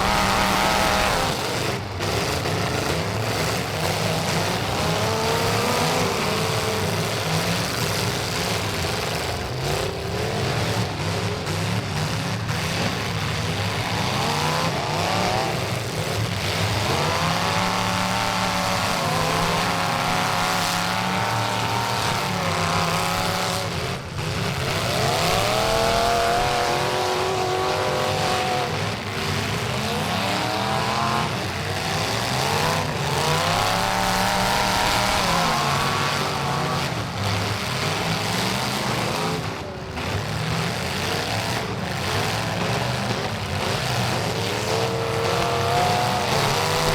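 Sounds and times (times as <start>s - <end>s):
race truck engines revving: 0.0s - 46.9s.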